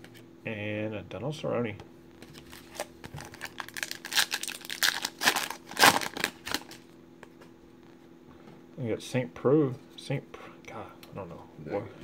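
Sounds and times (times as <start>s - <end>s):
foil wrapper tearing and crinkling: 2.4s - 6.9s.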